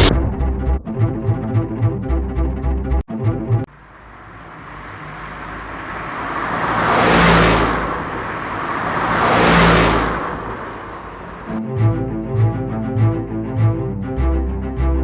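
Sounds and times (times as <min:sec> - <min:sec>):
vehicle passing by: 0:03.7 - 0:11.6.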